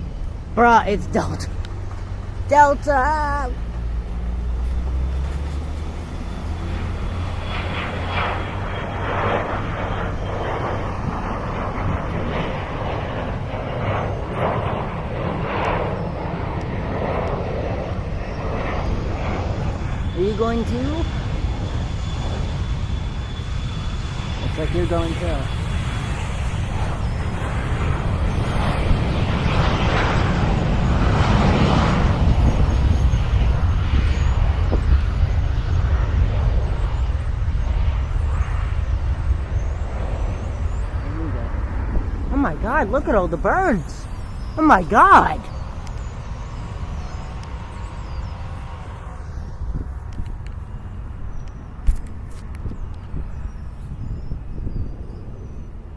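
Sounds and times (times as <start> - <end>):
jet engines running: 0.0 - 55.9.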